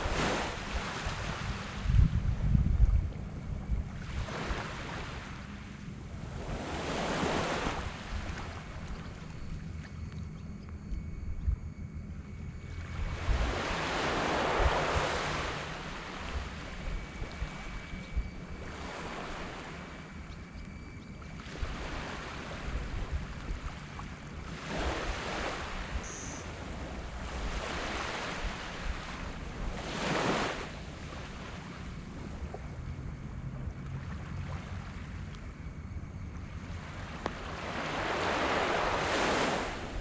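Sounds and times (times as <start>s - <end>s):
waves breaking on sand beach: 0.0s - 2.0s, 4.0s - 5.7s, 6.3s - 9.3s, 13.1s - 17.7s, 24.4s - 31.9s, 36.7s - 40.0s.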